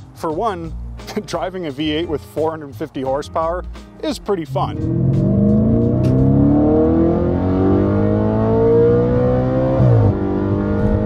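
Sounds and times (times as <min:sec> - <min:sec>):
car engine accelerating hard: 0:04.5 - 0:11.0.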